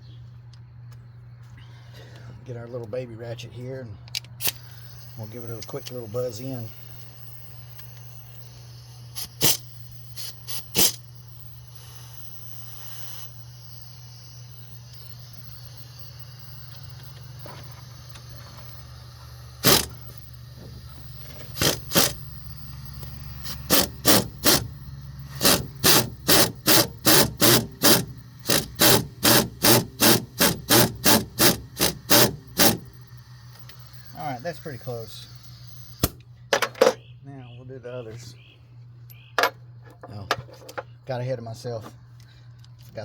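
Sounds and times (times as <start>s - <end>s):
ratchet clicking: 4.2s - 36.2s.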